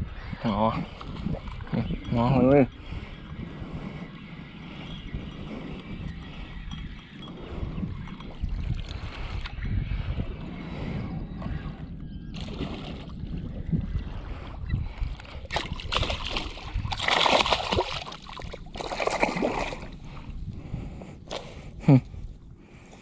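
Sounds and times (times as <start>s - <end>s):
water splashing and sloshing: 8.1s - 9.6s, 12.3s - 20.4s.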